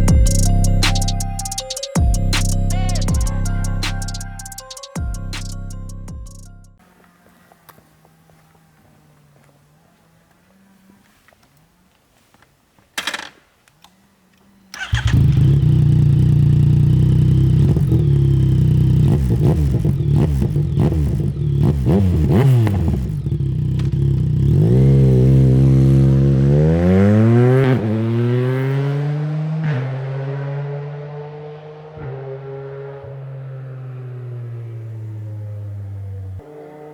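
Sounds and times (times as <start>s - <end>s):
motorcycle engine revving: 14.7s - 36.9s.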